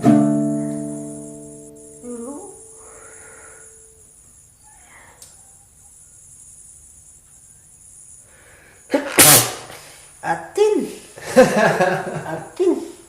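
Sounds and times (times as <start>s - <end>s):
faint hiss: 0.0s - 13.0s
child sneezing: 9.0s - 9.5s.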